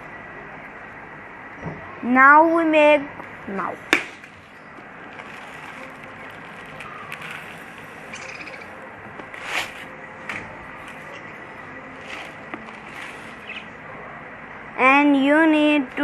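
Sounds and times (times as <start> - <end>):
budgerigars chirping: 6.7 - 8.8, 13.2 - 13.8.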